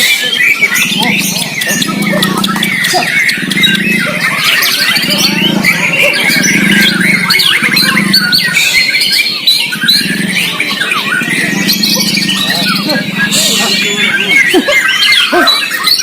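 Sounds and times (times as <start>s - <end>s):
birds singing warbling phrases: 0.0s - 16.0s
low pulsing hum: 0.8s - 8.6s, 9.6s - 14.6s.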